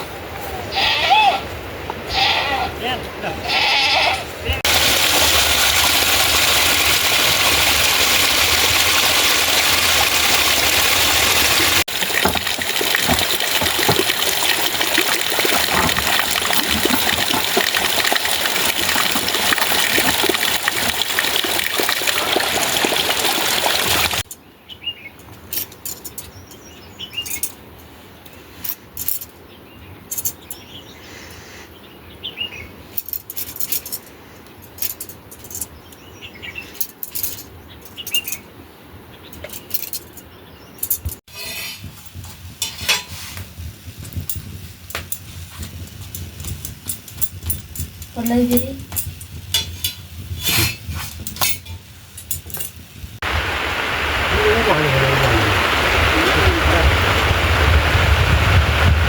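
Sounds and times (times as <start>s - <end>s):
rushing water: 4.6s - 24.3s, 51.2s - 59.0s.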